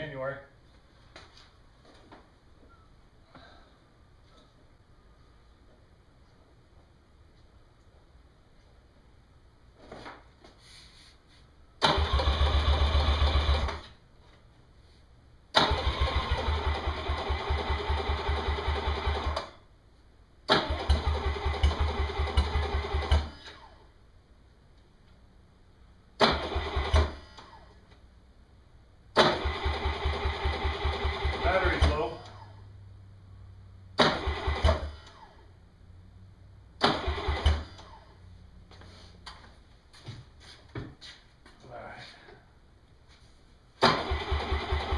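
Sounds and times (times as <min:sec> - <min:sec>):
outboard motor starter cranking: 0:11.8 - 0:13.7, 0:44.0 - 0:44.9.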